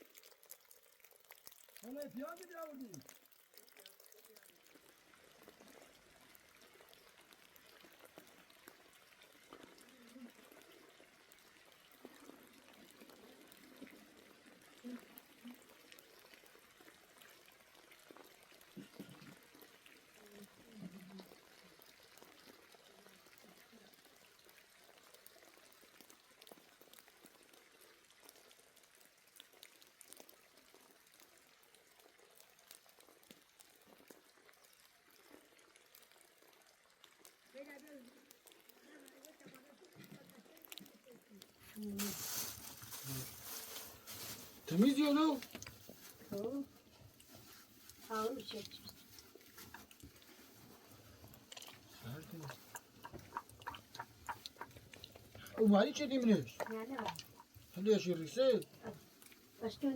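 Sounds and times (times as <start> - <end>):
cooking pot simmering: 0.0 - 59.9
faint hiss: 38.8 - 49.4
small pops: 51.3 - 55.6.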